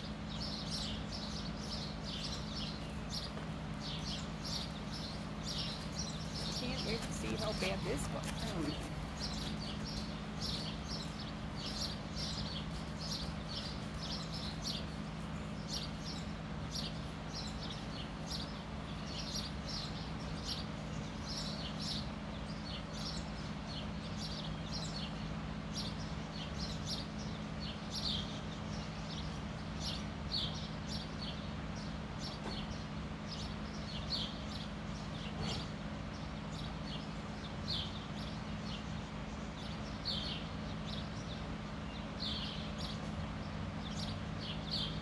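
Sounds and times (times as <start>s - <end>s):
small birds chirping: 0.0s - 45.0s
steady low hum: 0.0s - 45.0s.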